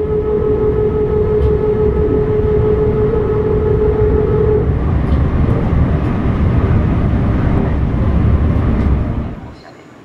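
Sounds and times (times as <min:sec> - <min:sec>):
train music horn: 0:00.0 - 0:05.6
train running rumble: 0:00.0 - 0:10.0.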